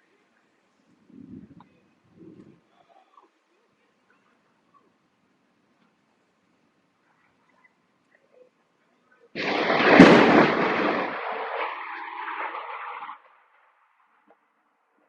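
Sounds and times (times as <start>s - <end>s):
thunder clap and rumble: 9.4s - 13.1s.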